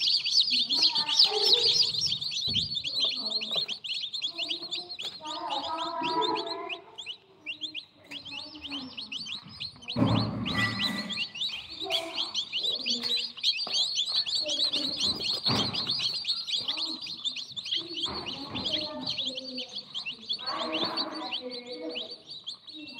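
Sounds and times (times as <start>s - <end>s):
hatchling birds peeping: 0.0s - 22.9s
rustling knocks: 9.6s - 19.4s.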